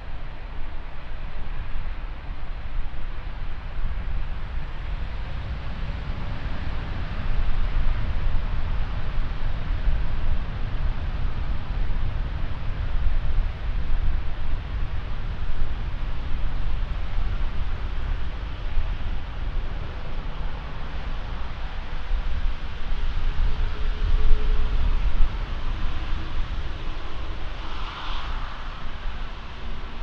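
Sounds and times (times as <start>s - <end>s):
wind rumble on microphone: 0.0s - 30.0s
jet aircraft roar: 19.8s - 30.0s.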